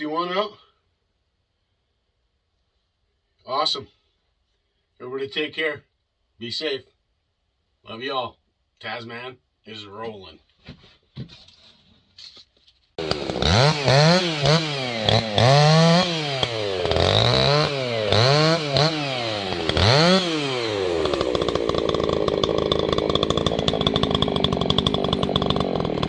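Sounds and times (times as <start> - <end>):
chainsaw revving: 13.0 - 26.0.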